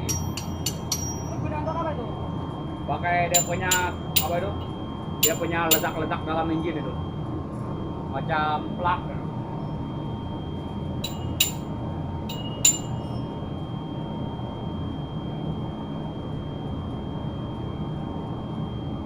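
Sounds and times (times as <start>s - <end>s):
sharp metallic clinks: 0.0s - 1.5s, 3.4s - 6.0s, 11.0s - 11.7s, 12.3s - 13.2s
low machinery drone: 0.0s - 8.0s.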